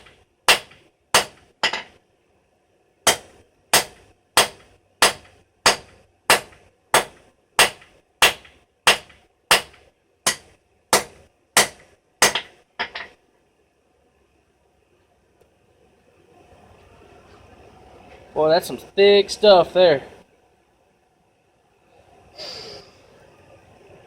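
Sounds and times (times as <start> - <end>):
hammer striking steel on anvil: 0.0 - 2.0, 3.1 - 13.2.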